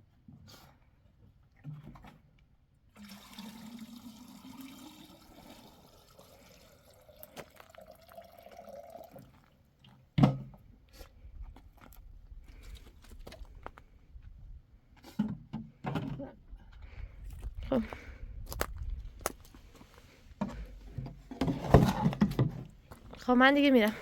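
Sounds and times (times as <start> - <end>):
water pouring into container: 3.0 - 9.6.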